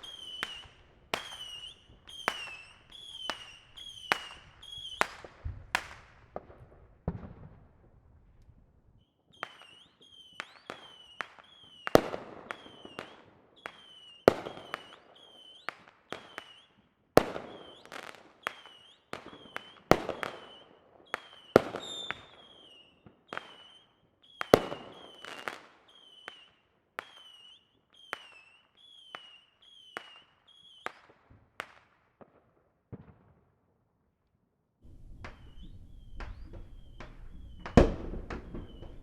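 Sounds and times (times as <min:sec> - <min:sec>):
distant fireworks bangs: 0:00.0 - 0:07.8, 0:34.8 - 0:39.0.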